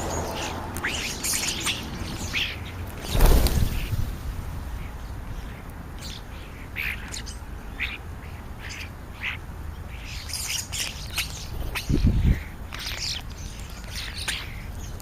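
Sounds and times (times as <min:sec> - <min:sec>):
birds squawking and chirping: 0:00.0 - 0:15.0.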